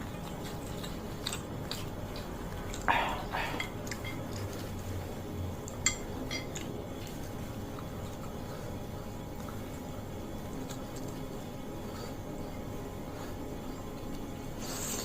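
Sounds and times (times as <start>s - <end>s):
cutlery clinking against a plate: 3.4s - 4.7s, 5.7s - 6.7s.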